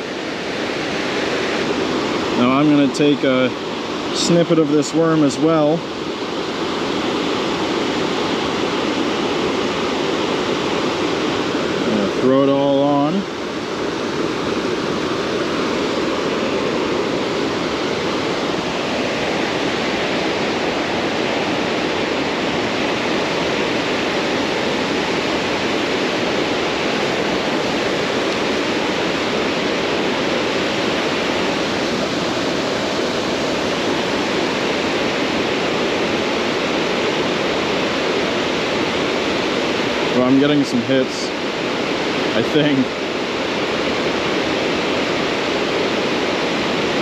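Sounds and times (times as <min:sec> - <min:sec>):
water rushing over dam: 0:00.0 - 0:47.0.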